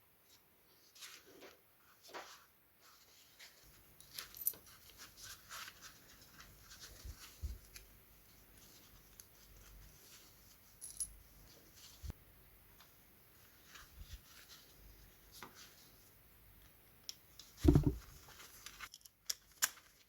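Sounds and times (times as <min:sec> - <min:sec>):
clinks of small parts and tools: 0:04.0 - 0:04.8, 0:10.8 - 0:11.2, 0:18.6 - 0:19.8.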